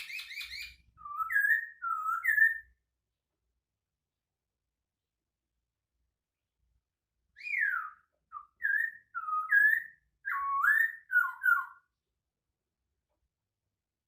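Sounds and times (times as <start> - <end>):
bird singing whistled notes: 0.0 - 2.8, 7.3 - 12.0.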